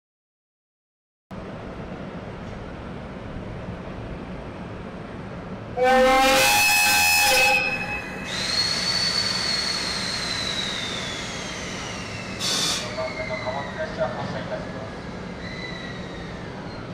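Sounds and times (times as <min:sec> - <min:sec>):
locomotive horn blast: 0:05.8 - 0:08.2.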